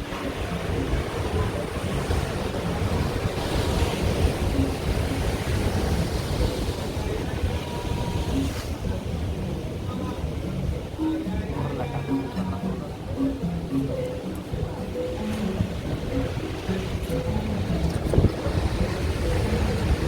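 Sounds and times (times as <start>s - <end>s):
surf washing onto shore: 0.0s - 10.4s
wind buffeting microphone: 0.0s - 11.0s, 15.5s - 20.0s.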